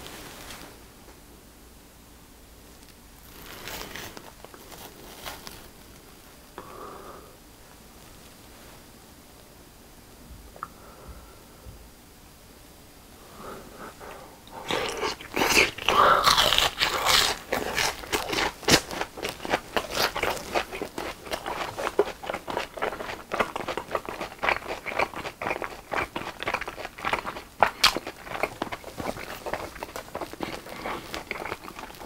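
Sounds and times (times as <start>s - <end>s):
crisp crust crunching: 2.8s - 6.2s, 14.5s - 32.0s
closed-mouth chewing: 13.8s - 32.0s.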